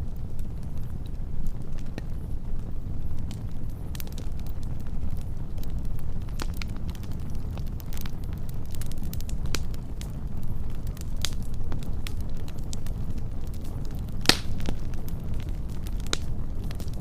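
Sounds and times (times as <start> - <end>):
fire crackling and popping: 0.0 - 17.0
wood fire rushing: 0.0 - 17.0.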